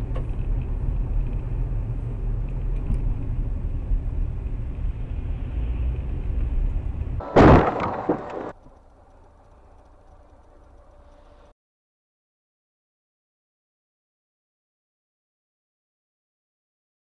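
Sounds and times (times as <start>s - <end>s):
car road and engine rumble: 0.0s - 11.5s
loud crash impact: 7.2s - 8.5s.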